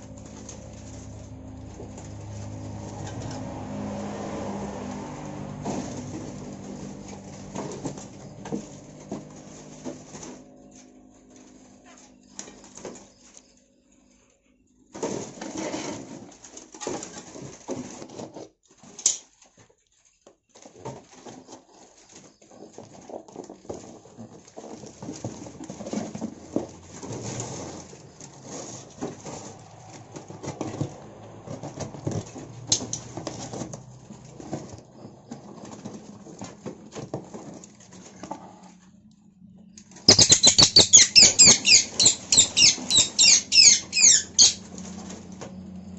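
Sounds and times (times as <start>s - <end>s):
birds fluttering and scuffling: 0.0s - 45.9s
rapid high-pitched bird chirping: 40.1s - 44.6s.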